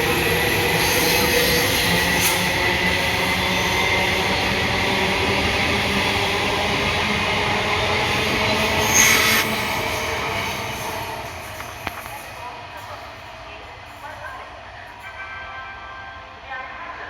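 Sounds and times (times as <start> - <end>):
high train squeal: 0.0 - 13.0
train wheels rumbling on track: 0.0 - 14.8.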